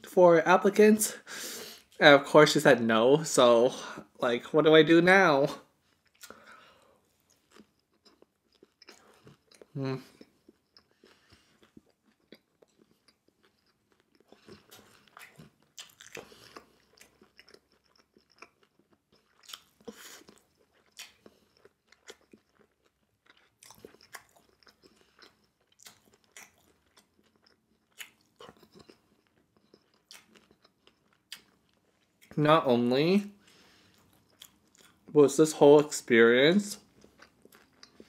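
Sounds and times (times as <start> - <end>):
chewing crunchy food: 5.8 - 32.4, 33.4 - 35.2, 36.8 - 38.0.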